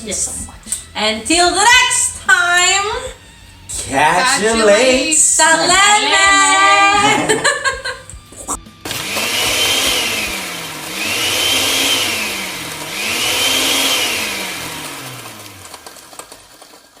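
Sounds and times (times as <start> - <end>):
blender motor running: 8.4 - 16.9.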